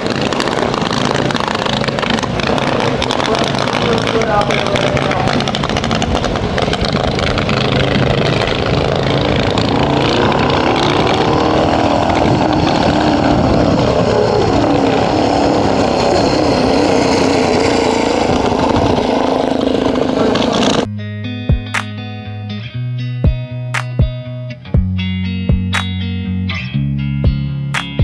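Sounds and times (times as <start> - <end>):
racing motorcycles passing: 0.0 - 20.9.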